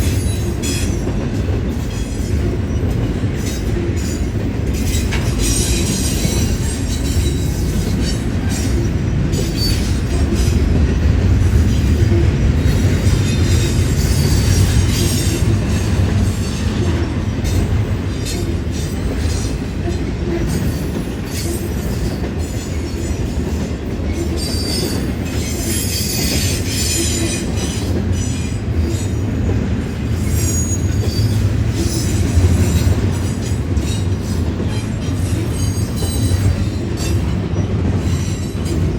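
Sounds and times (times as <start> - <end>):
freight train rumble: 0.0 - 38.9
high-pitched wheel squeal: 30.3 - 32.9.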